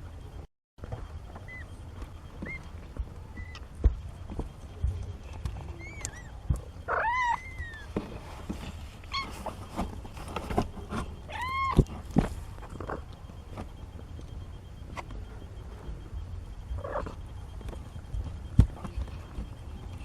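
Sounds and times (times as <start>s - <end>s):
kittens mewing: 5.7s - 7.9s, 11.2s - 11.9s.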